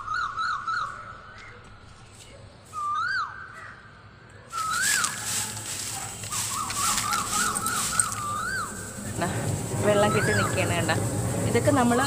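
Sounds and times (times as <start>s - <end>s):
bird whistled call: 0.0s - 1.6s, 2.7s - 3.9s, 4.6s - 5.6s, 6.3s - 8.9s
grass rustling and crackling: 4.5s - 12.0s.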